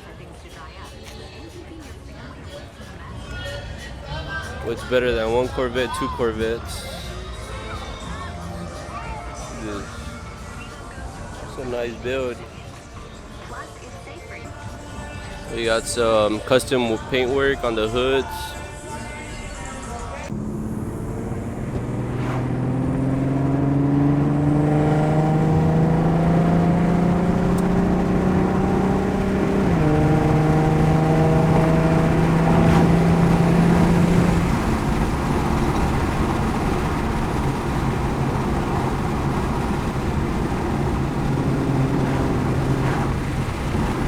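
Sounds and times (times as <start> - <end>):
car engine accelerating: 20.3 - 44.0.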